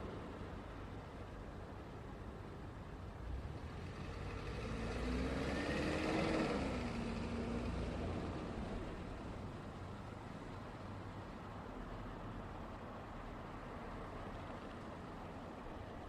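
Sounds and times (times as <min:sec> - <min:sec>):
traffic rumble: 0:00.0 - 0:16.0
vehicle driving past: 0:03.3 - 0:09.3.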